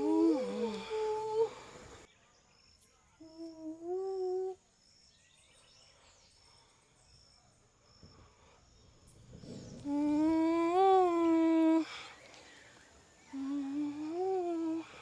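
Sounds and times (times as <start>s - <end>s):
woman humming: 0.0s - 1.8s, 3.2s - 4.6s, 9.7s - 12.1s, 13.3s - 15.0s.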